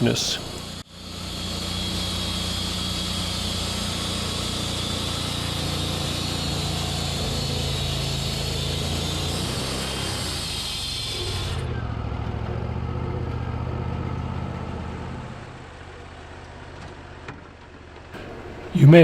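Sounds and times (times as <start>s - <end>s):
sawmill engine running: 0.0s - 19.0s
saw blade hissing through log: 0.3s - 11.7s.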